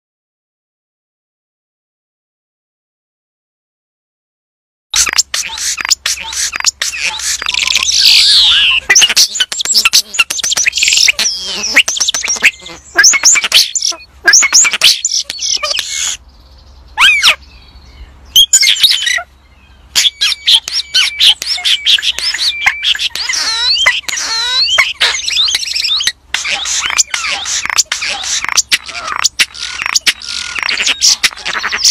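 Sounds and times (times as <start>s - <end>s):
songbird singing: 5.0s - 31.9s.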